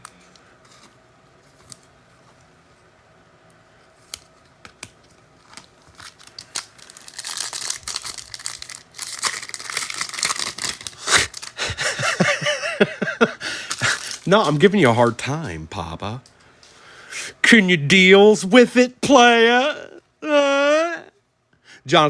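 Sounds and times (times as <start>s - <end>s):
foil wrapper tearing and crinkling: 4.2s - 11.7s, 13.6s - 14.7s.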